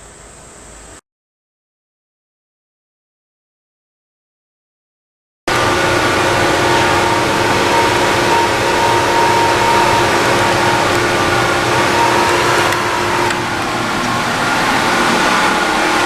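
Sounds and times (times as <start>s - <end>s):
fluid transfer pump humming: 5.5s - 16.0s.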